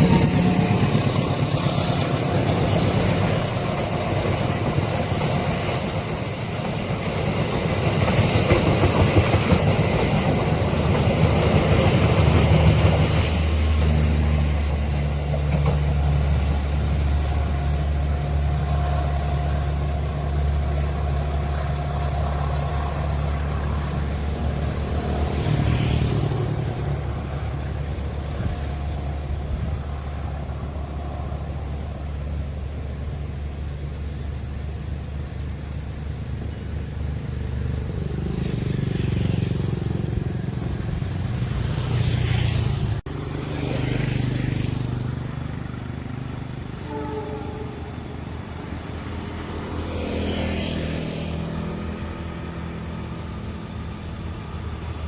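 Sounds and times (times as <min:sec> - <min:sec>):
vehicle engines running: 0:35.5 - 0:46.8.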